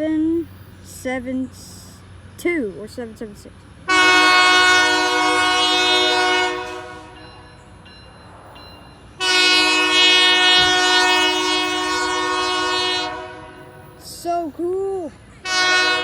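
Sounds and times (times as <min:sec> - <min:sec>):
locomotive air horn blasts: 0:03.9 - 0:07.2, 0:09.2 - 0:13.8, 0:15.4 - 0:16.0.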